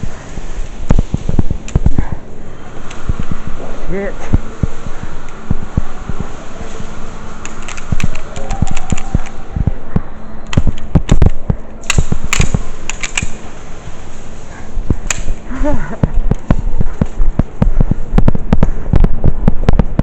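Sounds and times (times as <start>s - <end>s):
handling and movement noise: 0.0s - 20.0s
airsoft guns firing: 10.5s - 13.4s.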